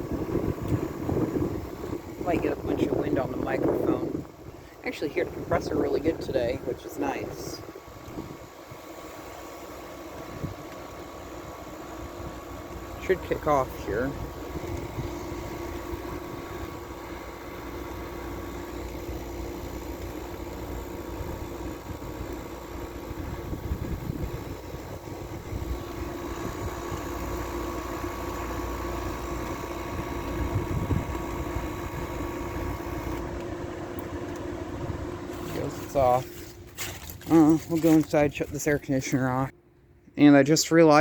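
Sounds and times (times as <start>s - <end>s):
wind rumbling on microphone: 0.0s - 8.8s, 23.1s - 27.0s, 30.2s - 32.7s
air conditioner humming: 0.0s - 41.0s.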